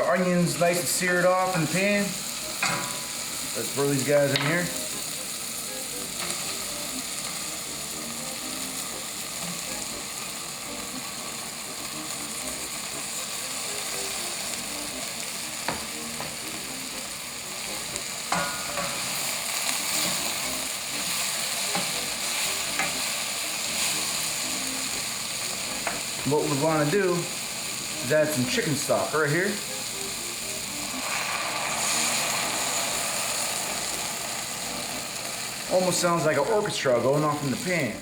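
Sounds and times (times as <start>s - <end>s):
vegetables sizzling in oil: 0.0s - 38.0s.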